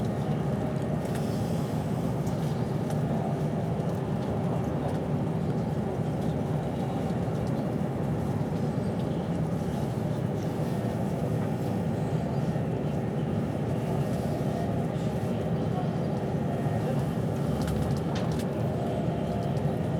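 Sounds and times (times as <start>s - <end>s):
train wheels rumbling on rails: 13.3s - 19.9s.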